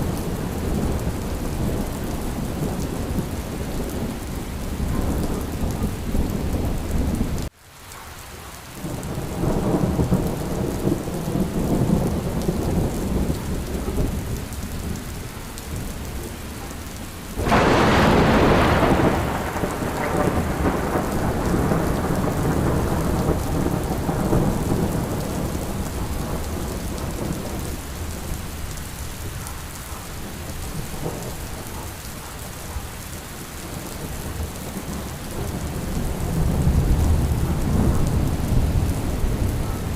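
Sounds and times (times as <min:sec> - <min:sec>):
steady rain: 0:00.0 - 0:39.9
rolling thunder: 0:08.8 - 0:15.1, 0:17.0 - 0:39.9
loud thunderclap: 0:17.4 - 0:27.7, 0:34.7 - 0:39.9.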